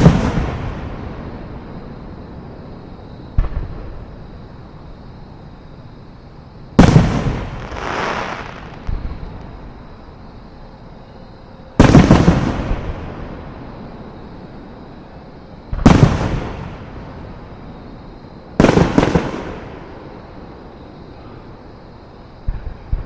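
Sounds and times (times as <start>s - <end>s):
fireworks shells bursting: 6.8s - 9.0s.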